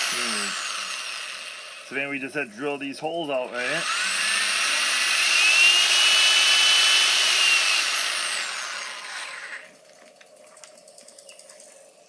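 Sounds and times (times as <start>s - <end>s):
electric drill whining: 0.0s - 2.0s, 3.5s - 9.7s.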